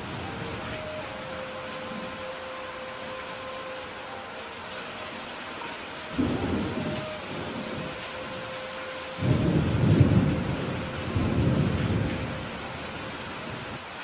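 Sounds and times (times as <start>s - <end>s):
steady rain: 0.0s - 14.0s
thunder rumbling: 6.1s - 13.8s.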